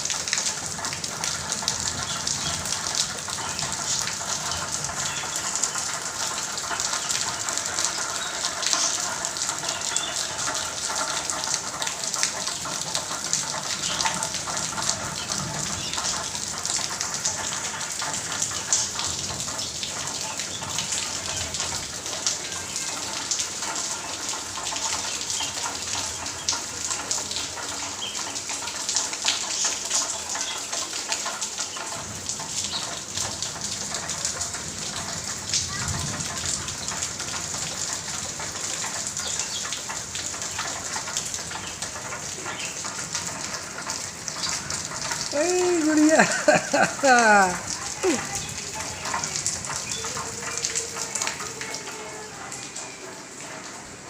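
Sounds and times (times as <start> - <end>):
heavy rain pouring: 0.0 - 54.0
water gushing: 0.0 - 54.0.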